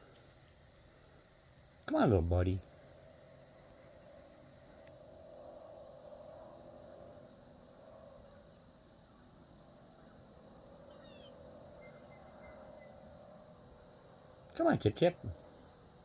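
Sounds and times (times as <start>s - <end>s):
insects trilling: 0.0s - 16.0s
faint chirp: 10.9s - 13.0s.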